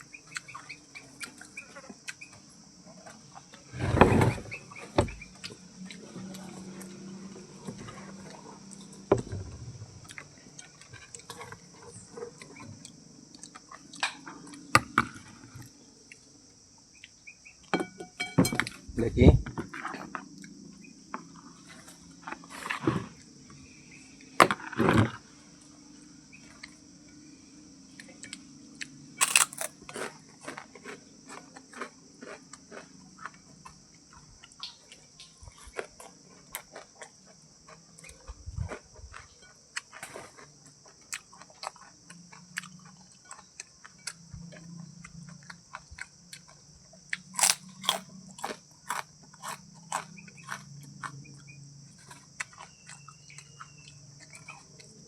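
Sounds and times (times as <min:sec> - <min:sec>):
crickets chirping: 0:00.0 - 0:55.0
animal crunching and chewing food: 0:28.0 - 0:55.0.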